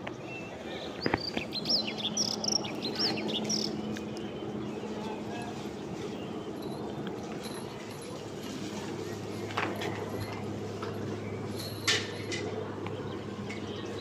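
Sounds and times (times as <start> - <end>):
steady low hum: 0.0 - 14.0
small birds chirping: 0.1 - 9.4.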